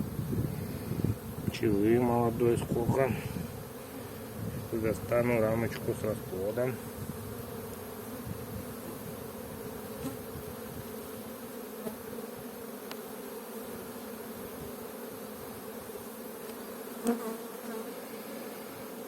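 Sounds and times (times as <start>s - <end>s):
bees humming: 0.0s - 19.0s
faint ticks: 12.8s - 13.0s.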